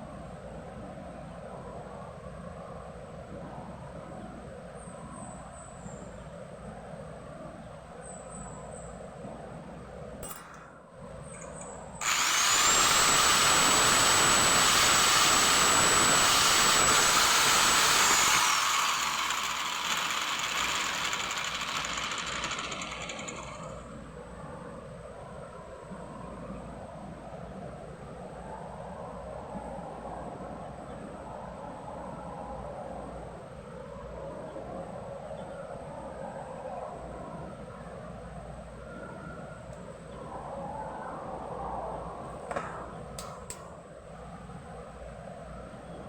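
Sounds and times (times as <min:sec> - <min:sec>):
power tool motor whining: 0:11.4 - 0:23.8.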